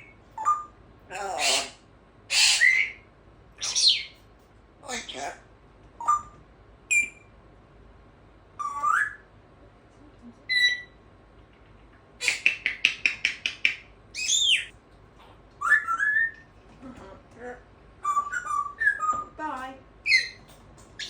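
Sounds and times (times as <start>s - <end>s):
parrot chirping: 0.0s - 3.0s, 3.6s - 4.2s, 4.8s - 5.4s, 6.0s - 7.3s, 8.6s - 9.3s, 10.5s - 11.0s, 12.2s - 14.7s, 15.6s - 16.5s, 18.0s - 19.4s, 20.0s - 21.0s
parrot whistling: 2.3s - 3.0s, 6.0s - 7.3s, 8.6s - 9.3s, 12.2s - 14.7s, 15.6s - 16.5s, 18.0s - 19.4s, 20.1s - 20.4s.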